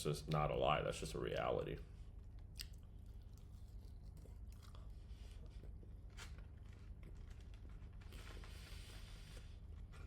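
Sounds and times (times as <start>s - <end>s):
person chewing food: 2.2s - 7.0s.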